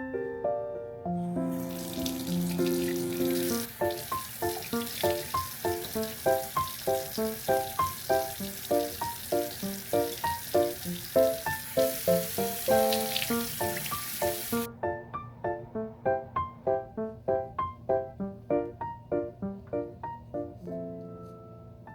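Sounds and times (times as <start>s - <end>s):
steady hiss: 1.5s - 14.7s.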